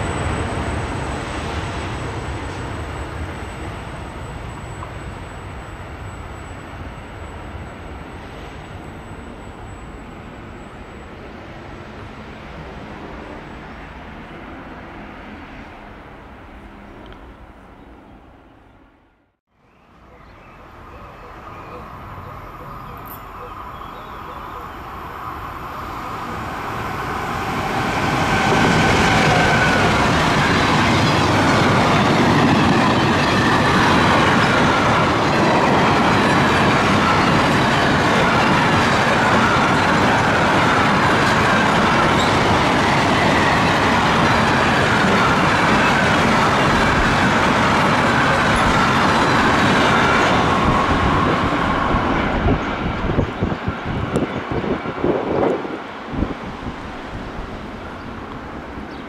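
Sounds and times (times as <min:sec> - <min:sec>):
train wheels rumbling and clattering: 0:26.2 - 0:59.0.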